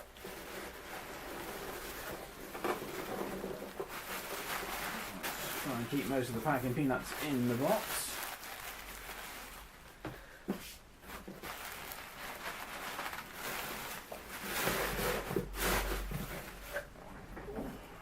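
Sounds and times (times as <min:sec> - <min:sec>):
packing peanuts rustling: 0:00.0 - 0:10.0, 0:11.0 - 0:16.8.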